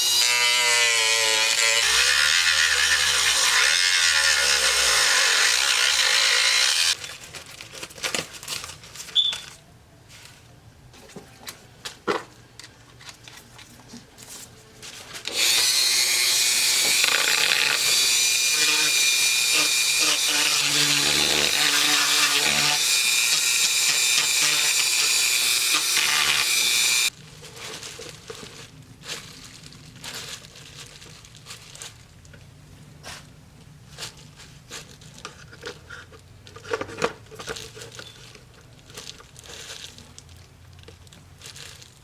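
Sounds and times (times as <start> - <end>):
handheld power tool running: 0.0 - 7.0, 15.3 - 27.1.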